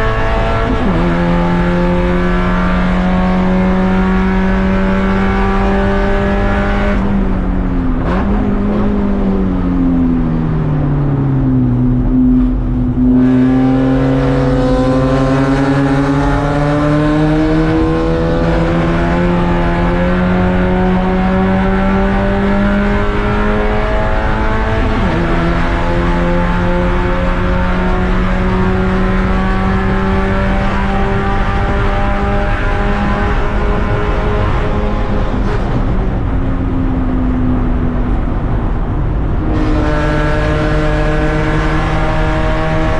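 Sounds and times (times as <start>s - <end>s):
race car engine: 0.0s - 42.9s.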